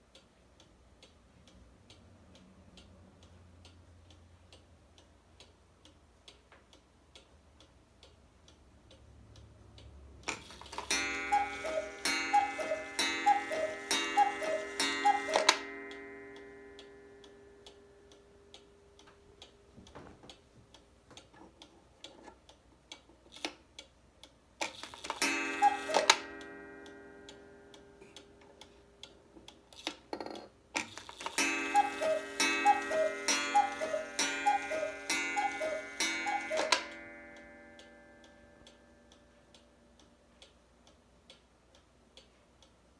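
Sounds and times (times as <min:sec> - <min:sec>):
clock ticking: 0:00.0 - 0:42.9
clockwork whirring: 0:10.3 - 0:19.6, 0:24.6 - 0:40.1
cuckoo call: 0:10.6 - 0:16.1, 0:25.2 - 0:27.0, 0:31.4 - 0:38.4.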